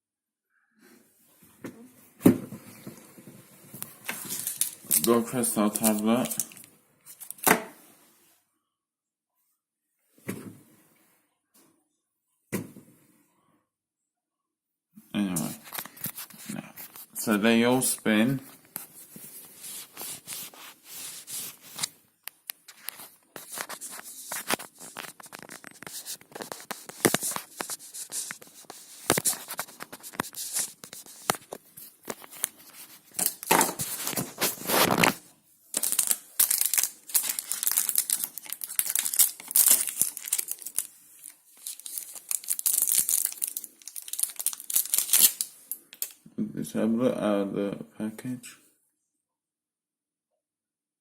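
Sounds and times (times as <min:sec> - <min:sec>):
plastic wrapping crinkling: 0:02.6 - 0:07.5, 0:15.5 - 0:46.2.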